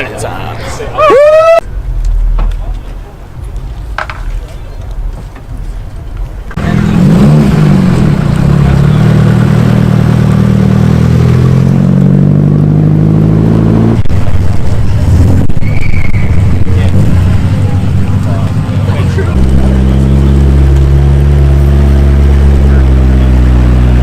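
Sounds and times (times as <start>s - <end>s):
car engine running loudly: 6.6s - 24.0s.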